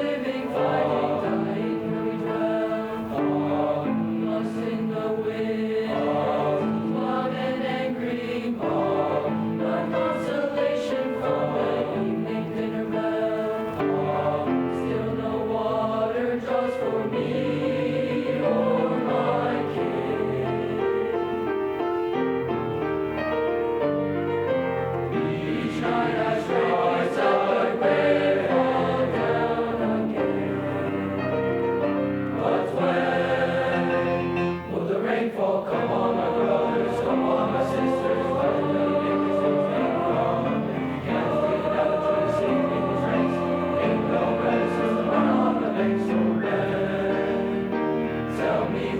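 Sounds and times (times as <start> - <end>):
choir singing in parts: 0.0 - 21.8, 24.3 - 48.9.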